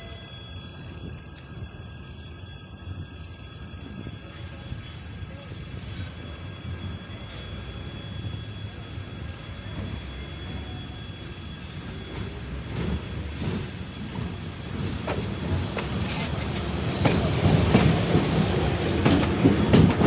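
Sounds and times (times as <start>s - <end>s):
train rumbling on rails: 0.0s - 20.0s
high wheel squeal: 3.8s - 19.9s.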